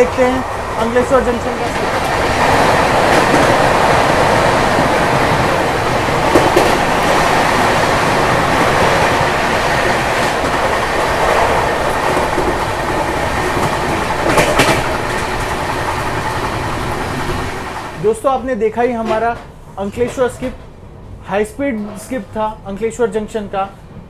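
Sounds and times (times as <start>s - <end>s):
wheels clickety-clack on rails: 0.0s - 18.0s
train rushing past at high speed: 0.0s - 18.2s.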